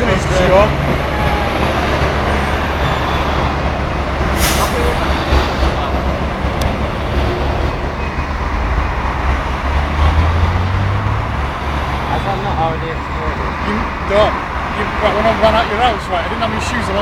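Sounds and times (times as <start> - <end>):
motorway traffic rumble: 0.0 - 17.0
short hiss: 4.4 - 5.0.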